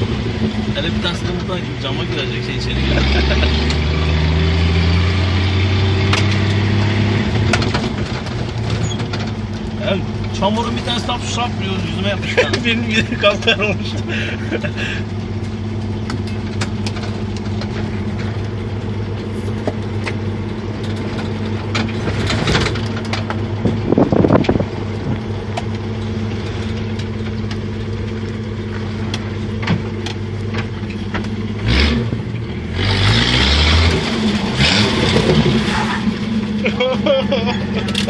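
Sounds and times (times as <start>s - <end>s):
off-road vehicle engine running: 0.0s - 38.0s
sharp clicks and knocks: 6.1s - 10.4s, 15.2s - 18.6s, 20.8s - 25.8s, 26.4s - 31.7s.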